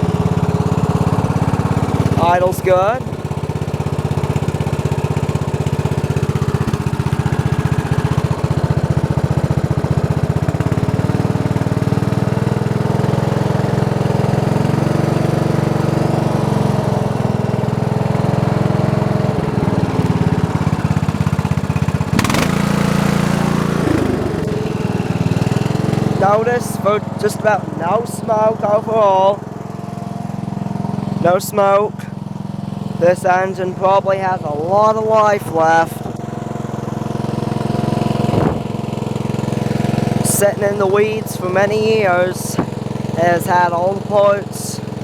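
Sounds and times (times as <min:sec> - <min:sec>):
small engine idling: 0:00.0 - 0:45.0.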